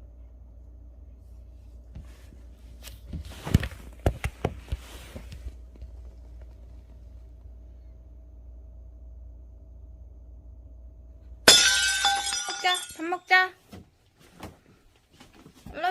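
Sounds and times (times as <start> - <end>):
rustling: 2.0 - 7.3.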